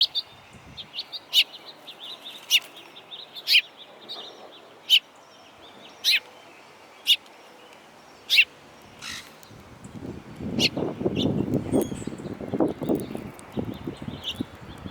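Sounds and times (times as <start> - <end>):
songbird chip notes: 7.0 - 14.9.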